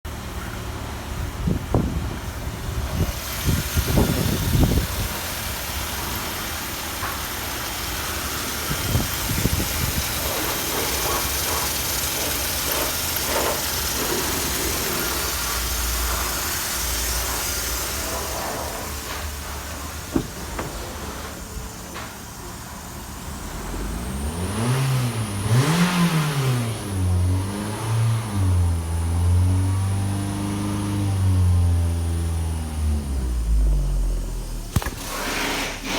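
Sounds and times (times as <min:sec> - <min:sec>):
car engine running and revving: 0:00.1 - 0:20.7, 0:21.5 - 0:35.3
engine knocks: 0:00.1 - 0:24.2, 0:34.5 - 0:35.9.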